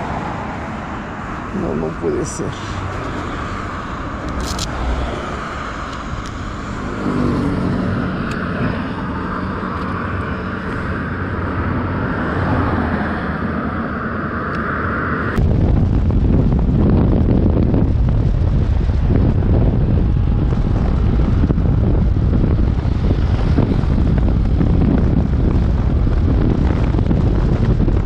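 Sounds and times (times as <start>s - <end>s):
wind noise on microphone: 0.0s - 28.0s.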